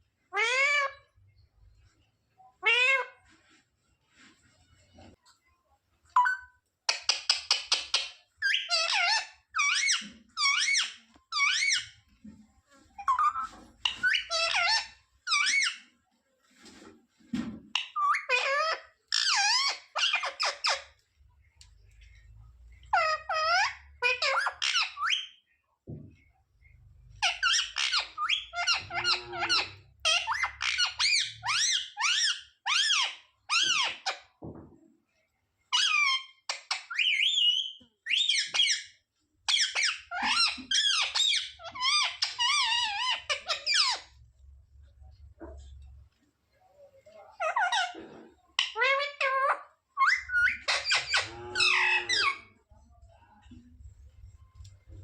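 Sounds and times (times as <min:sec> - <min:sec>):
parrot squawking: 0:00.3 - 0:01.1, 0:02.6 - 0:03.3, 0:07.1 - 0:12.0, 0:13.0 - 0:15.9, 0:17.8 - 0:20.9, 0:22.8 - 0:25.4, 0:27.1 - 0:34.2, 0:35.7 - 0:44.1, 0:47.3 - 0:52.6.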